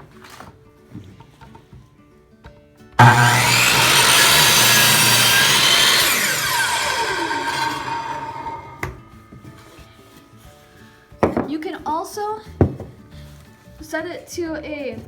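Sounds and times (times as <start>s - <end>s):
miter saw running: 3.0s - 9.1s
saw blade winding down whine: 3.0s - 9.1s.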